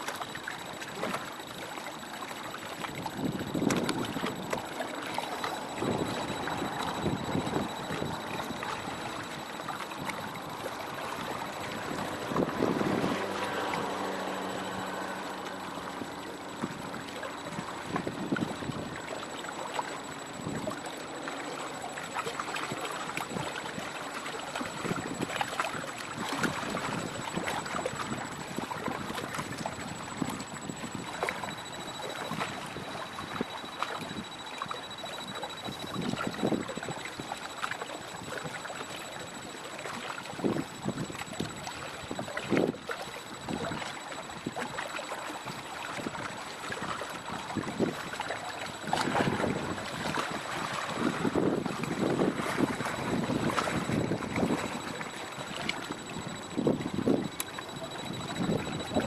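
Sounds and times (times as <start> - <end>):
water splashing and sloshing: 0.0 - 59.0
wind buffeting microphone: 5.7 - 14.0, 48.8 - 59.0.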